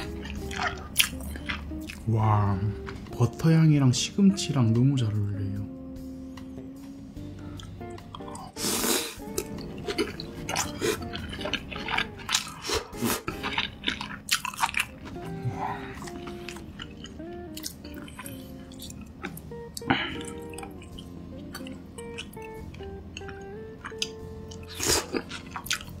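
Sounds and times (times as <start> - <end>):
wet chewing: 0.0 - 2.1, 7.6 - 26.0
soft guitar music: 0.0 - 26.0.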